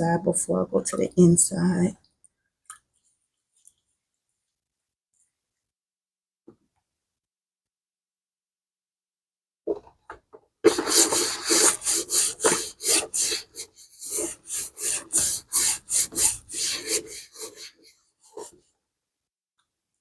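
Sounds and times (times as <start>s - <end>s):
brush scrubbing leather: 10.7s - 18.5s.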